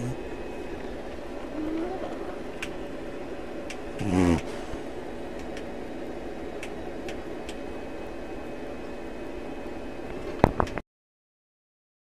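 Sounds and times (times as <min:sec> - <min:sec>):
dog snoring: 0:04.0 - 0:04.7.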